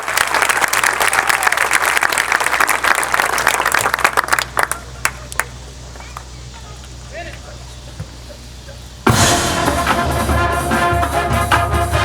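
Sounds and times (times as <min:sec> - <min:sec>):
audience applause: 0:00.0 - 0:06.3.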